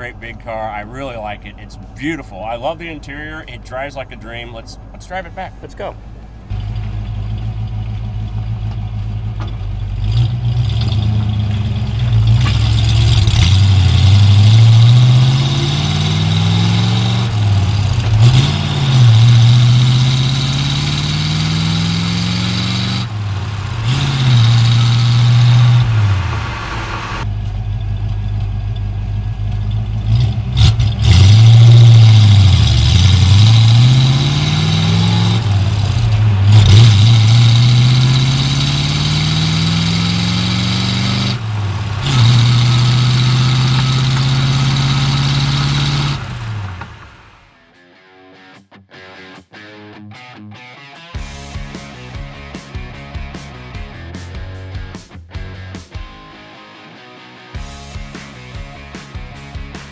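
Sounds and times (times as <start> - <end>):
car engine accelerating: 0.0 - 47.5.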